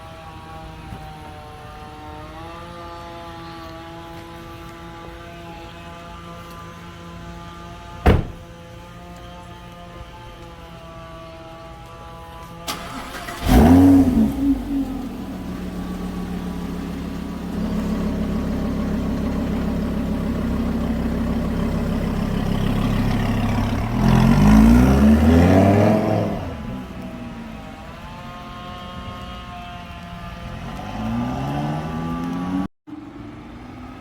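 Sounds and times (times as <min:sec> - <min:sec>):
car engine starting and idling: 0:08.0 - 0:08.6, 0:12.6 - 0:27.8
car engine revving: 0:12.7 - 0:27.4, 0:30.2 - 0:32.7.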